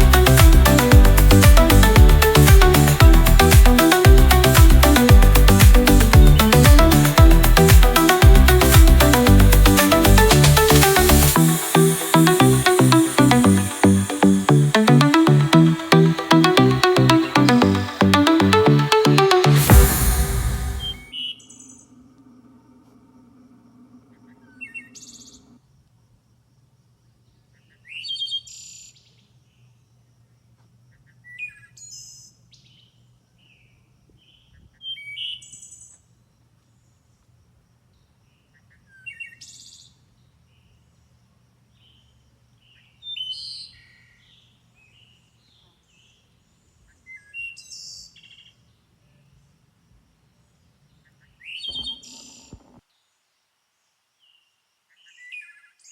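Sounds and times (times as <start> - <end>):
songbird singing: 50.2 - 53.2
soft bird chirps: 50.9 - 52.8.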